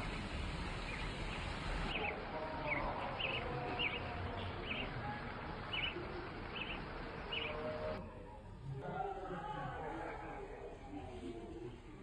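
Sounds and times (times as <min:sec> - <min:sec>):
outdoor background hiss: 0:00.0 - 0:08.6.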